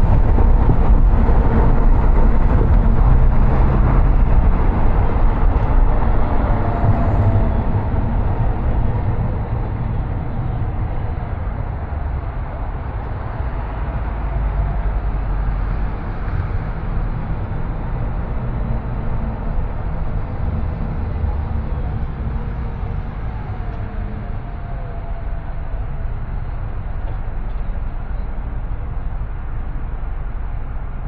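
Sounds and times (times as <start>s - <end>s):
car driving rumble: 0.0s - 31.0s.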